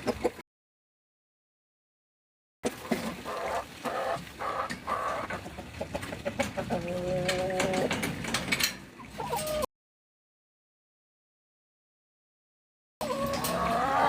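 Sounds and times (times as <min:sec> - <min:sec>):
chickens clucking: 0:00.0 - 0:00.4, 0:02.6 - 0:09.7, 0:13.0 - 0:14.0.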